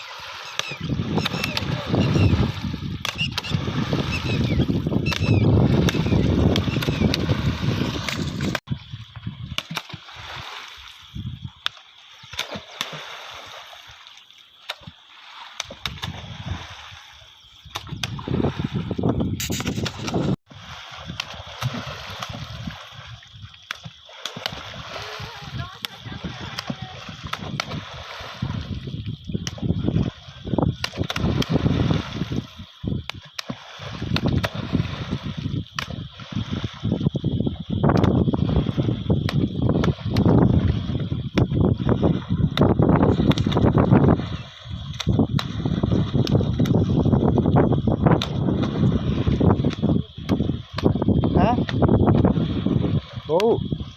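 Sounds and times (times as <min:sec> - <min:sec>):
water sloshing and gurgling: 0:00.0 - 0:53.9.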